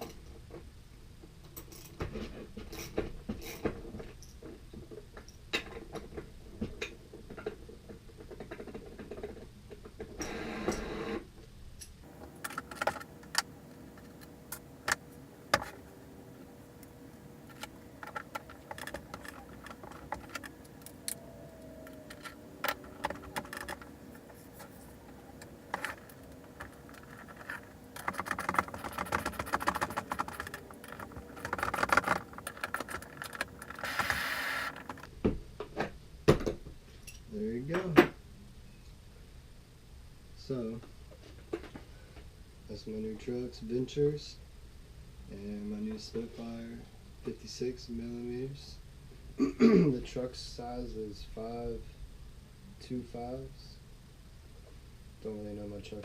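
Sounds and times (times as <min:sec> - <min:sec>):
scraping rustle: 0:15.5 - 0:35.1.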